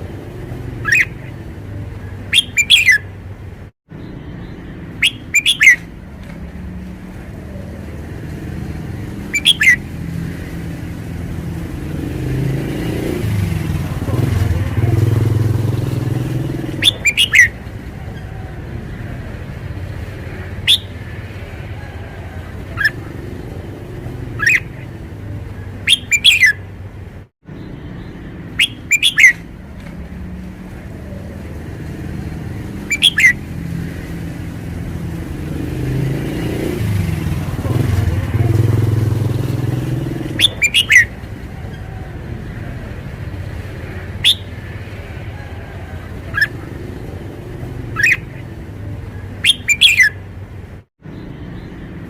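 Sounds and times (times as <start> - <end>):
bird singing whistled phrases: 0.8 - 1.3, 2.3 - 3.1, 4.5 - 5.9, 9.3 - 9.8, 16.8 - 17.6, 20.6 - 21.0, 24.4 - 24.8, 25.8 - 26.6, 28.5 - 29.5, 32.8 - 33.4, 40.4 - 41.1, 44.2 - 44.6, 46.3 - 46.6, 47.9 - 48.4, 49.4 - 50.2.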